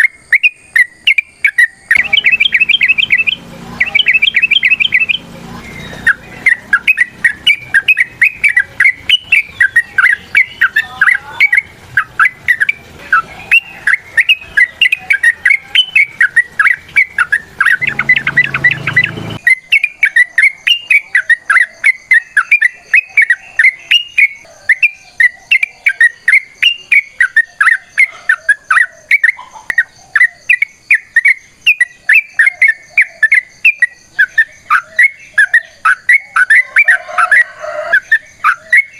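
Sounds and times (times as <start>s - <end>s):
bulbul singing bubbly chirps: 0.0s - 38.9s
low background hum: 1.8s - 19.5s.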